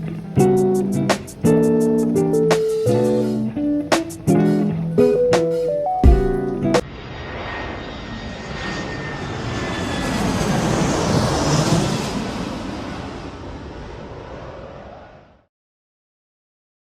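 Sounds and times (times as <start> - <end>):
guitar music: 0.0 - 6.8
loud rushing roar: 0.0 - 15.5.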